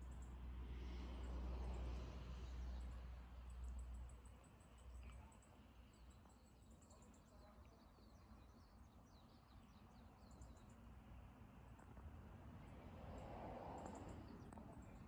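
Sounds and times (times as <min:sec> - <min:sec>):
small birds chirping: 0:03.7 - 0:10.9.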